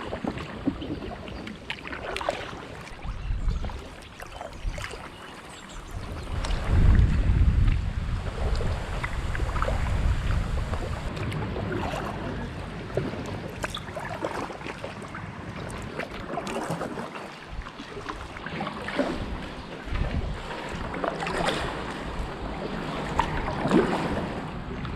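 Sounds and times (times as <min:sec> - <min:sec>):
kayak paddle splashes: 0:00.0 - 0:24.9
wind buffeting microphone: 0:02.9 - 0:05.0, 0:05.7 - 0:16.0, 0:19.0 - 0:24.9.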